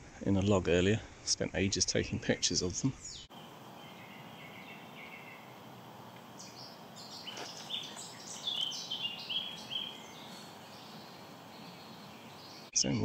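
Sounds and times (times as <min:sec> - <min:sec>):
faint background hiss: 0:00.0 - 0:13.0
songbird singing high notes: 0:03.0 - 0:12.9.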